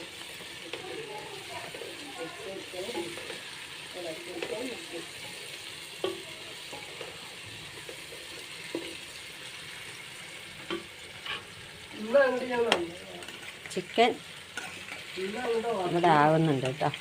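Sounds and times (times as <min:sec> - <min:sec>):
food sizzling in hot oil: 0:00.0 - 0:17.0
spoon knocking against pan: 0:04.3 - 0:07.2, 0:10.6 - 0:11.4.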